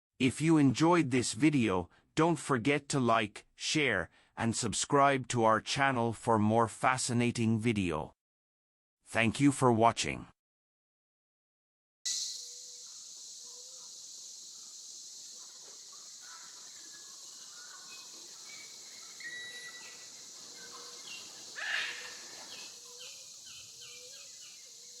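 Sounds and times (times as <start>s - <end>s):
bird chirps: 12.1s - 25.0s
loud bird call: 12.1s - 25.0s
steady high hiss: 12.1s - 25.0s.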